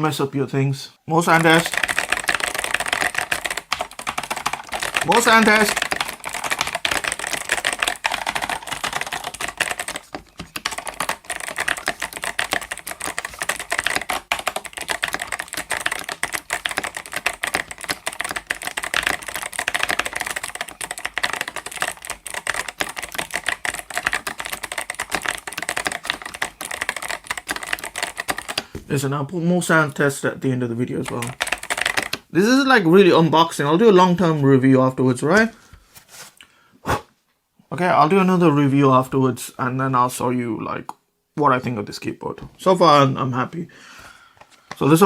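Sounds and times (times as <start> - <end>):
mechanical keyboard typing: 1.2 - 28.7, 30.9 - 32.3.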